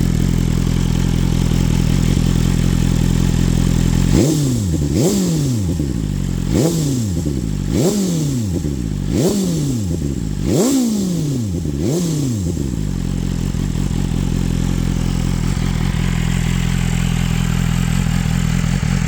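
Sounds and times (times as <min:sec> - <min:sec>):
motorcycle engine idling: 0:00.0 - 0:19.0
motorcycle engine revving: 0:00.0 - 0:19.0.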